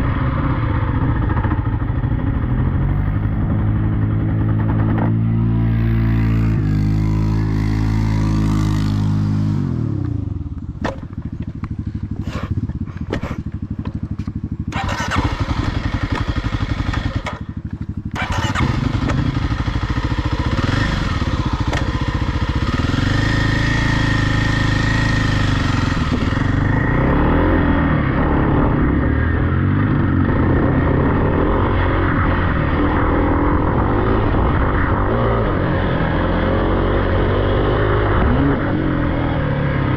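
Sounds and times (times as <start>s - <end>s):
off-road vehicle engine revving: 18.1s - 39.9s.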